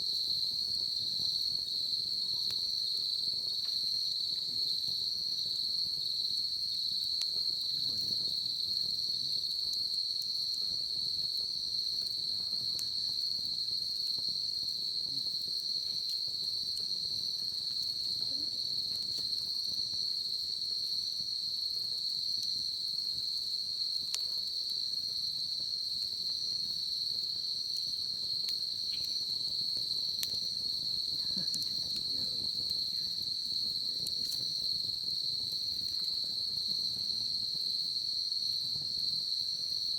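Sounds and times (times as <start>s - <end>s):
bonfire crackling: 0.0s - 39.9s
insects trilling: 0.1s - 39.9s.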